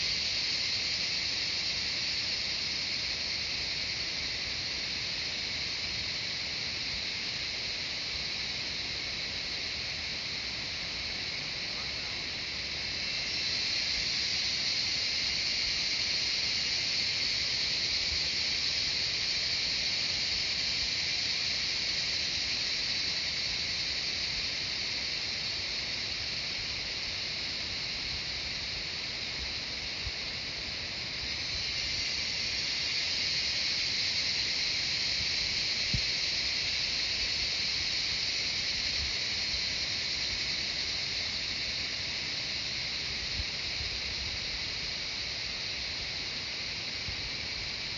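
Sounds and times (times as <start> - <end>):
cicadas buzzing: 0.0 - 47.9.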